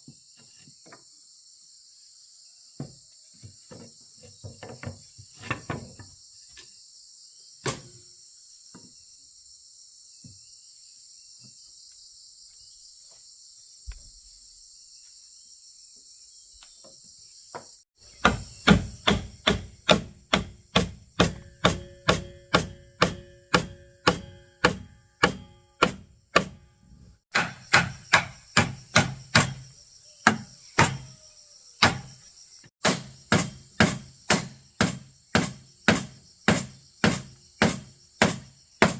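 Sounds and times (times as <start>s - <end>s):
insects droning: 0.0s - 38.9s
hammering on wood: 18.2s - 26.7s, 27.3s - 31.1s, 31.8s - 32.1s, 32.8s - 38.9s.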